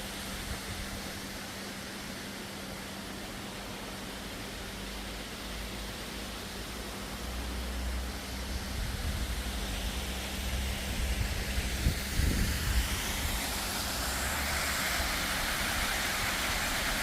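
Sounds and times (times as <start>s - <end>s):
waterfall rushing water: 7.2s - 17.0s.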